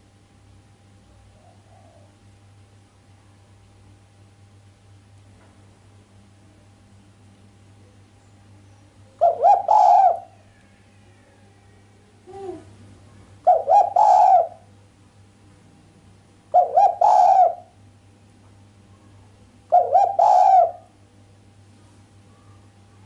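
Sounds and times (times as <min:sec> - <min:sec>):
dove cooing: 0:01.2 - 0:02.3, 0:09.2 - 0:12.7, 0:13.4 - 0:14.7, 0:16.5 - 0:17.8, 0:19.7 - 0:21.0.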